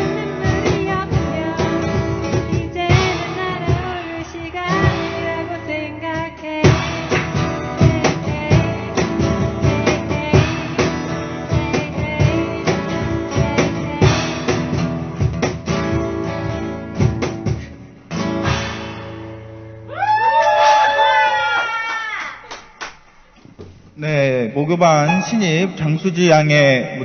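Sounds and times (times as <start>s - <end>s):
acoustic guitar strumming: 0.0s - 19.9s, 25.0s - 26.0s.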